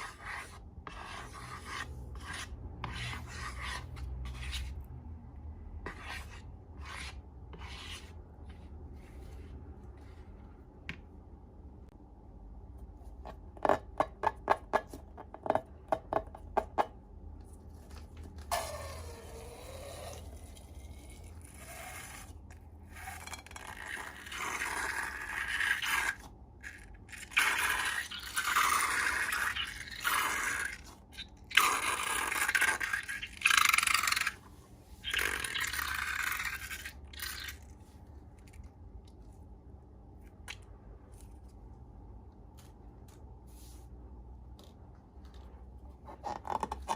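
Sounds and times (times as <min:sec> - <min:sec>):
slime scraping strokes: 0:00.0 - 0:04.9, 0:05.8 - 0:10.4, 0:18.5 - 0:38.8.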